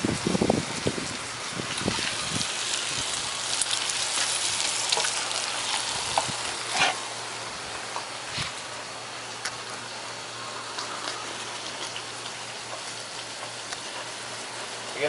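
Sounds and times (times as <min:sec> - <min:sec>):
bacon sizzling in a pan: 0:00.7 - 0:08.7, 0:09.9 - 0:15.0.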